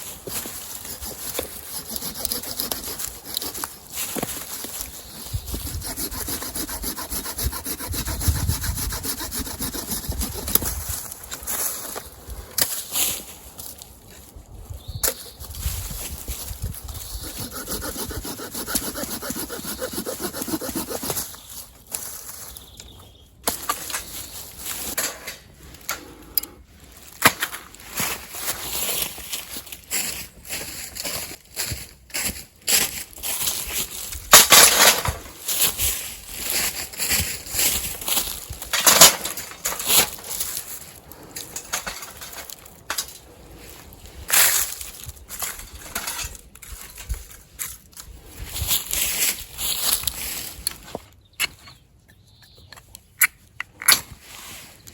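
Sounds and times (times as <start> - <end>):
hand saw cutting wood: 0.2 - 10.7, 17.0 - 21.4.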